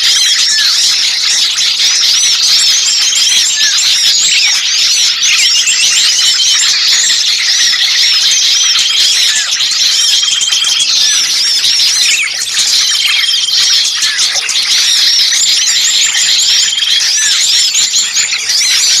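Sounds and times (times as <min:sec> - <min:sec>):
chorus of songbirds chirping: 0:00.0 - 0:19.0
level bird trill: 0:00.0 - 0:19.0.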